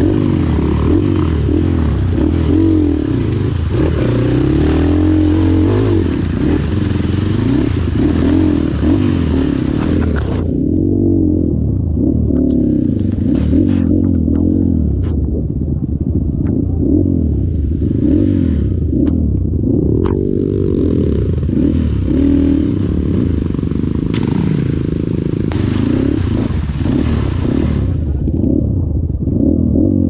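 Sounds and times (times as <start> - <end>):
dirt bike engine revving: 0.0 - 11.3, 12.2 - 15.0, 16.7 - 30.0.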